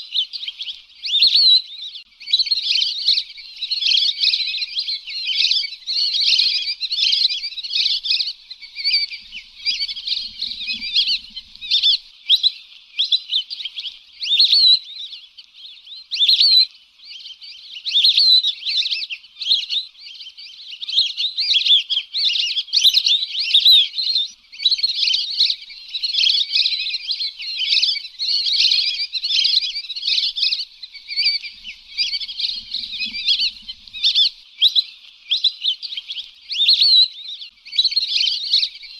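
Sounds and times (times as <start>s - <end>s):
ducks whistling and chirping: 0.0s - 38.9s.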